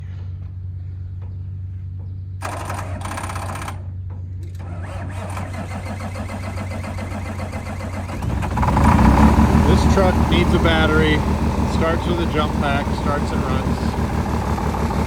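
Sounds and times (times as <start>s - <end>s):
diesel truck engine clattering: 0.0s - 15.0s.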